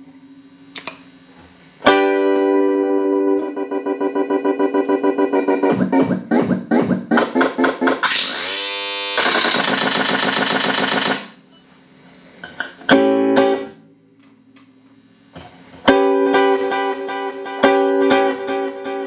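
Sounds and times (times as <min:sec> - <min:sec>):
electric guitar chords with delay: 0:01.8 - 0:09.1, 0:12.9 - 0:14.1, 0:15.8 - 0:19.0.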